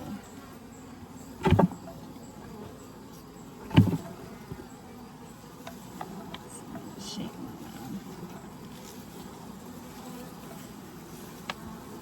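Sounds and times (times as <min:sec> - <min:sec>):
dull thumps of hive frame: 0:00.0 - 0:12.0
faint hum of bees: 0:00.0 - 0:12.0.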